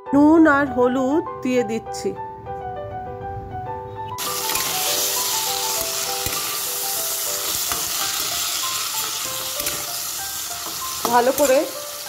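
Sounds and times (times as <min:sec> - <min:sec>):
beans sizzling in oil: 0:04.2 - 0:12.0.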